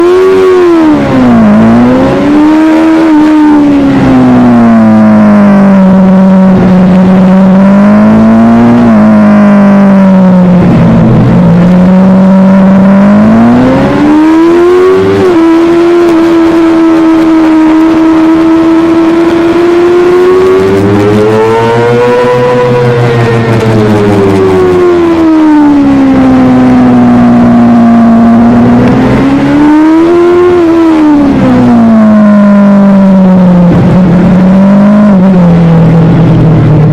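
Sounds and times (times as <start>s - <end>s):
motorcycle engine revving: 0.0s - 36.9s.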